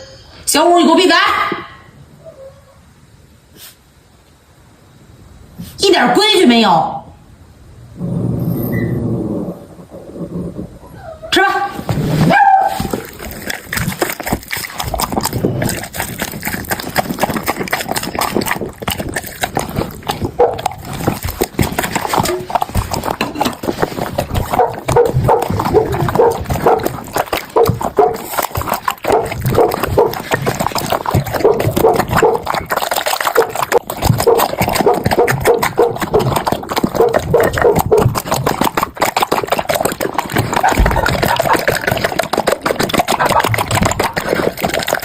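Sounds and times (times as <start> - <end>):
dogs slurping and lapping food: 11.8 - 45.0
dogs chewing wet food: 12.2 - 45.0.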